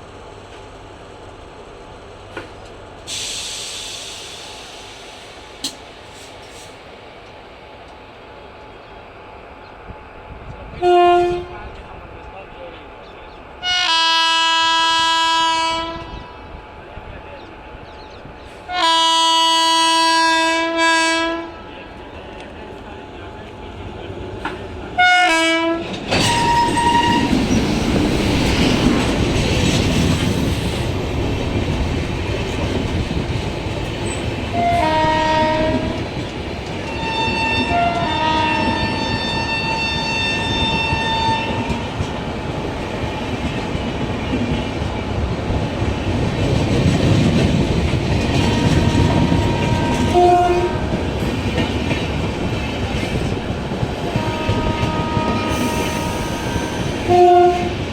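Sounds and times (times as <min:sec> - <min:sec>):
train wheels rumbling and clattering: 0:00.0 - 0:13.6, 0:15.0 - 0:57.9
locomotive horn blasts: 0:10.8 - 0:11.7, 0:13.6 - 0:16.2, 0:18.7 - 0:21.6, 0:25.0 - 0:27.4, 0:34.5 - 0:36.0, 0:36.9 - 0:41.7, 0:48.3 - 0:51.0, 0:54.1 - 0:57.8.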